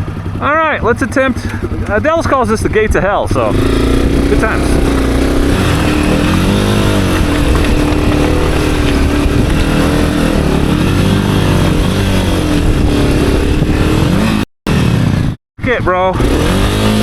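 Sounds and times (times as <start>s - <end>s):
dirt bike engine revving under load: 3.2s - 15.4s, 16.0s - 17.0s.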